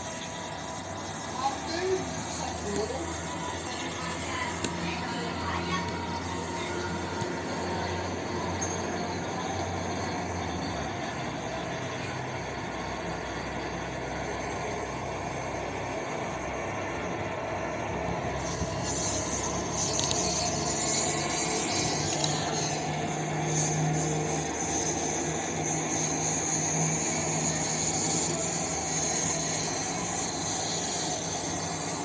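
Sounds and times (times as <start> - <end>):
high hiss: 0.0 - 32.0
train wheels rumbling on rails: 0.0 - 32.0.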